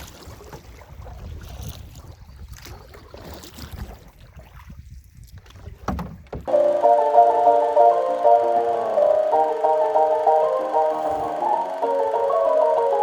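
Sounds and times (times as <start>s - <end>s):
wind rumbling on microphone: 0.0s - 6.4s
music: 6.5s - 13.0s.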